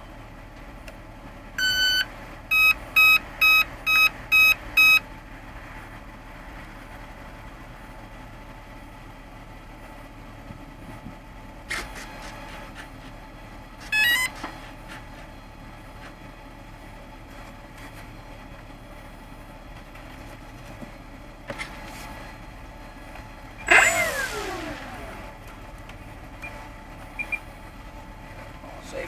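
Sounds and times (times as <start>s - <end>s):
rising electronic beeps: 1.6s - 5.0s
electric motor whine spinning down: 23.6s - 25.4s.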